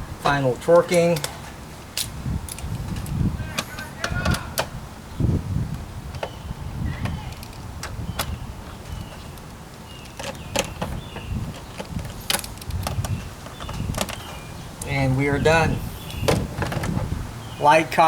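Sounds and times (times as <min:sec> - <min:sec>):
low rumble of handling noise: 0:00.0 - 0:17.7
hand tool metallic clicks: 0:00.8 - 0:01.4.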